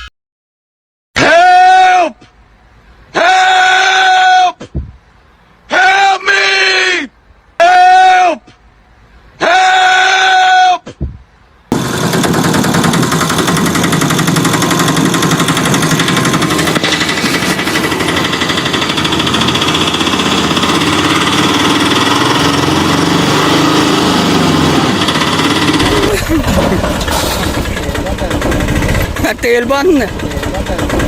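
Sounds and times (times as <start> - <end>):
motor buzzing rattle: 11.7 - 31.0.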